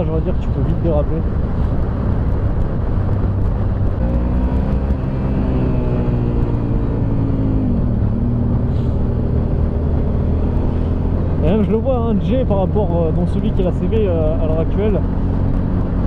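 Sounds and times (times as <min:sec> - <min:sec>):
wind rushing over microphone: 0:00.0 - 0:16.0
motorcycle engine running: 0:01.3 - 0:16.0.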